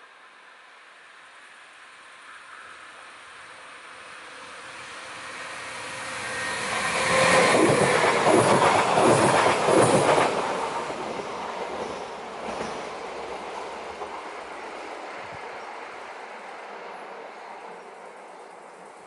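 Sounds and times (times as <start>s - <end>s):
train whine: 2.2s - 19.0s
train wheels clattering over rails: 6.7s - 14.3s.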